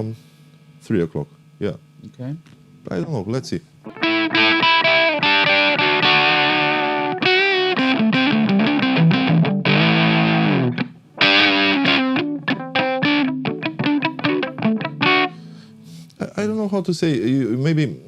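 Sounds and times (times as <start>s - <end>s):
distorted electric guitar: 3.9s - 15.8s.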